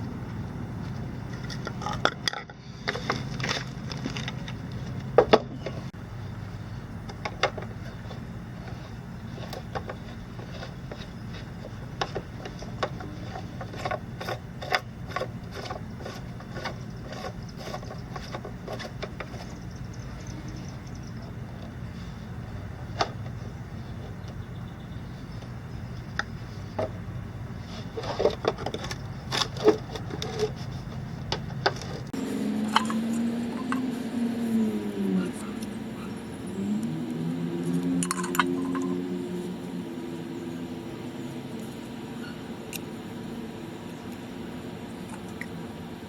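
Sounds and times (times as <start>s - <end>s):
steady low hum: 0.0s - 46.0s
objects clicking and knocking: 1.3s - 5.9s, 9.4s - 21.0s, 28.0s - 32.1s, 38.0s - 39.0s.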